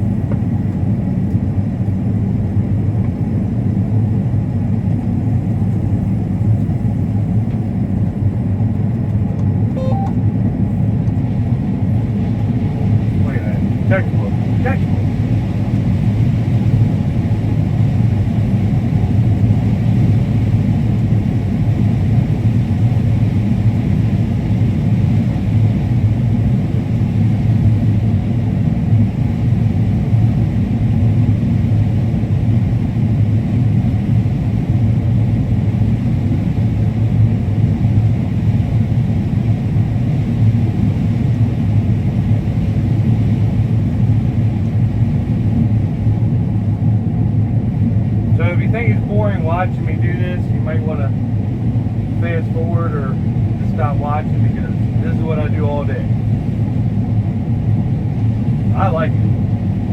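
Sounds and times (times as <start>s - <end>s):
combine harvester rumble: 0.0s - 59.9s.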